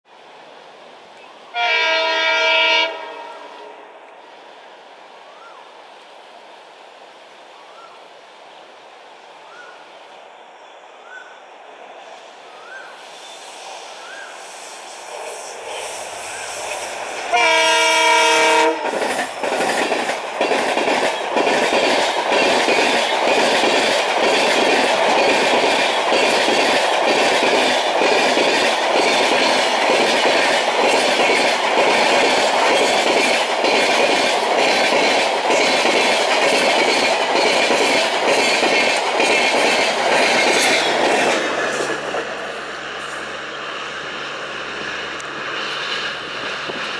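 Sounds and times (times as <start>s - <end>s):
train horn: 1.5s - 4.0s, 17.3s - 19.0s
train wheels clattering: 15.4s - 42.5s, 44.8s - 46.9s.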